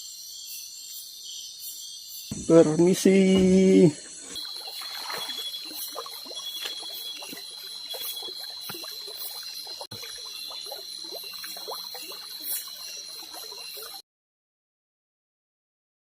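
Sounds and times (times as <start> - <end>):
high-pitched insect drone: 0.0 - 14.0
water trickling and dripping: 2.3 - 14.0.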